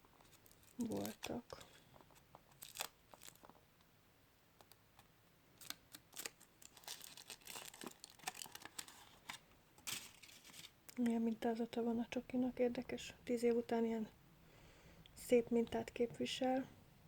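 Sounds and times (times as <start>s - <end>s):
foil wrapper crinkling: 0.1s - 3.6s, 5.6s - 10.8s.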